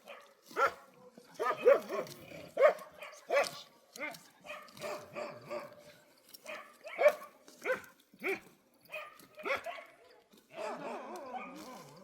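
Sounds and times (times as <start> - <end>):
dog barking: 0.0 - 0.8, 1.4 - 3.6, 4.5 - 5.8, 6.4 - 11.6.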